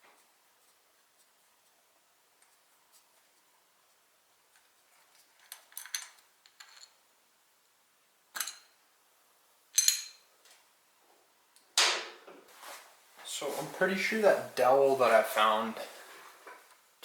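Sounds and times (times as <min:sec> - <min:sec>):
metal parts clinking: 0:05.4 - 0:07.0, 0:09.8 - 0:10.2.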